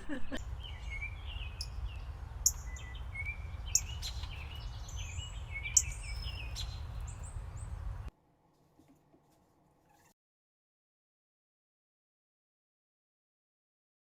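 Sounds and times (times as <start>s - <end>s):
wind noise rumble: 0.0s - 8.1s
songbirds singing and calling: 0.1s - 8.1s.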